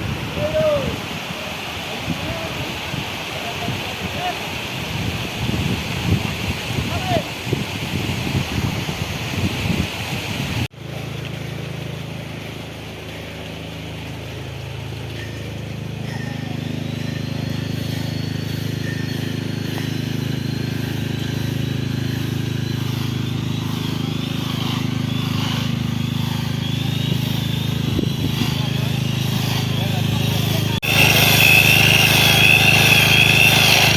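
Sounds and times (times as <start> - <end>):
engine running steadily: 0.0 - 33.9
thin high whine: 12.2 - 33.9.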